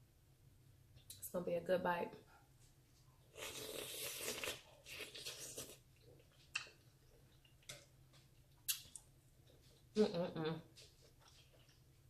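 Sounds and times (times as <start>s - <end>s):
close-miked chewing: 10.7s - 12.0s.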